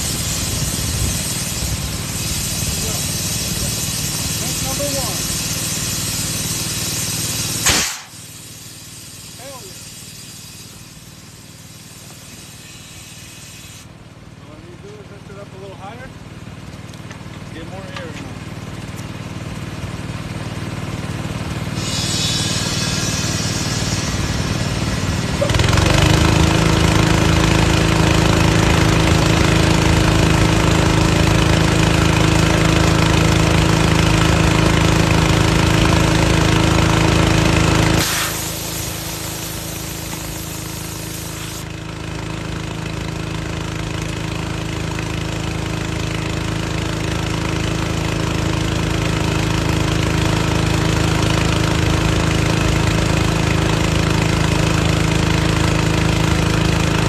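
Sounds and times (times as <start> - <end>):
air hissing: 0.0 - 13.9, 21.7 - 25.3, 37.0 - 41.7
air compressor engine running: 0.0 - 57.0.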